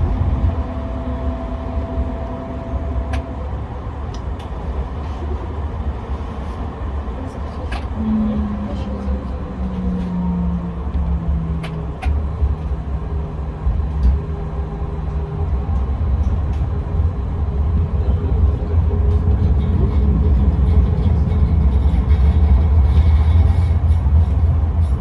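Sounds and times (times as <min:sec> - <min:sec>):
traction motor hum: 0:00.0 - 0:05.0
tram wheels rumbling on rails: 0:00.0 - 0:25.0.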